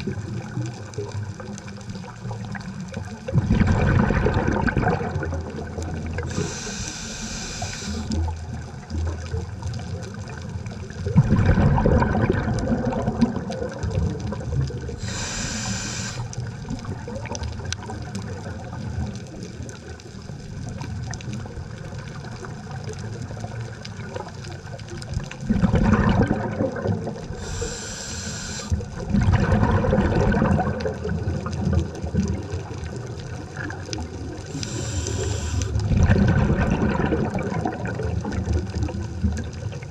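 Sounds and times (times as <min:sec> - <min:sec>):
low wash of water: 0:00.0 - 0:39.9
bubbling exhalations: 0:03.3 - 0:09.3, 0:10.9 - 0:18.6, 0:25.4 - 0:39.8
regulator hissing inhalations: 0:06.2 - 0:08.2, 0:15.0 - 0:16.4, 0:27.4 - 0:28.8, 0:34.5 - 0:35.8.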